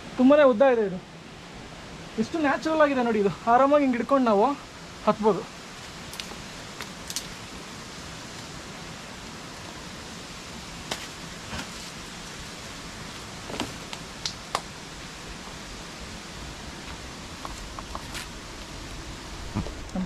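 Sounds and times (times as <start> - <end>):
rustles and knocks: 13.4 - 14.7.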